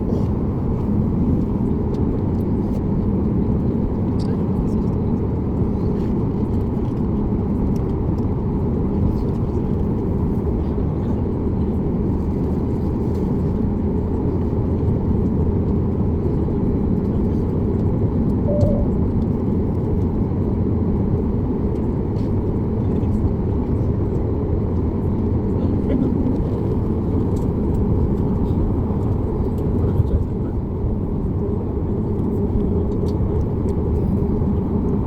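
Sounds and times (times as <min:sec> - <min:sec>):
airplane cabin engine rumble: 0:00.0 - 0:35.0
faint tone: 0:18.4 - 0:19.1.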